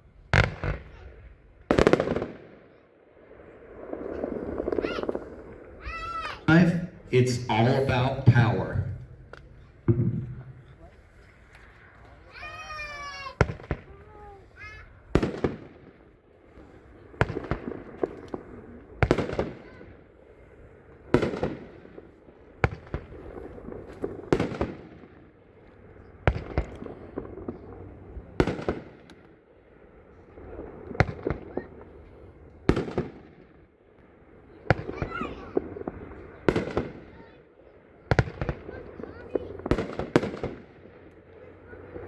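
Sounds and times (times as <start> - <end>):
firework bangs with crackle: 0.3 - 2.6, 8.3 - 11.7, 12.4 - 20.0, 21.0 - 25.4, 26.2 - 29.4, 30.3 - 33.7, 34.6 - 37.4, 38.0 - 41.2.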